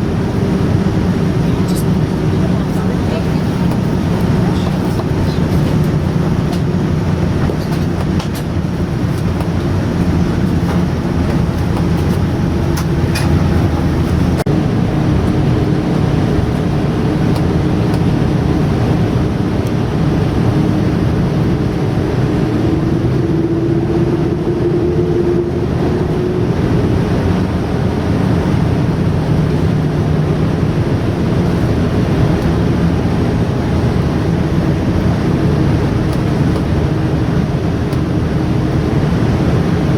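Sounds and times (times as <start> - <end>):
airliner cabin rumble: 0.0 - 39.9
faint engine hum: 0.0 - 39.9.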